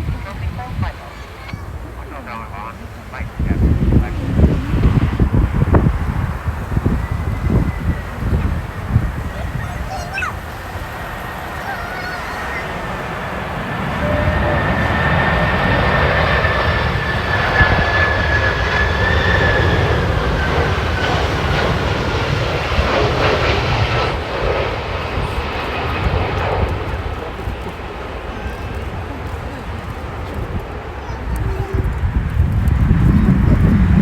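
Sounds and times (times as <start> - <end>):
jet plane passing overhead: 0.0 - 34.0.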